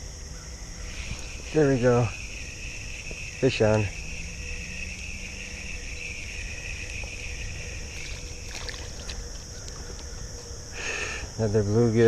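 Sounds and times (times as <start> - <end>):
insects droning: 0.0 - 12.0
low rumble of water: 4.4 - 10.7.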